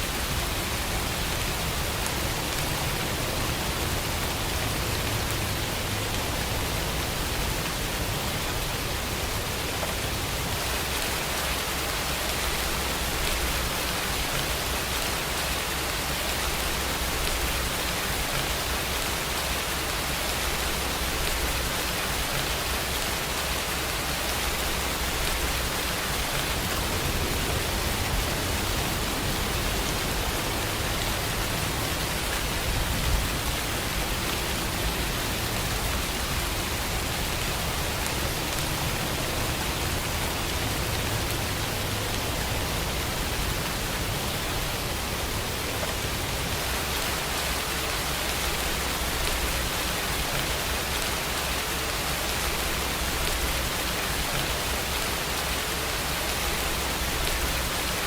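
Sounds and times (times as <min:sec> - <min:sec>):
steady rain hiss: 0:00.0 - 0:58.0
distant thunder rumble: 0:26.1 - 0:31.9.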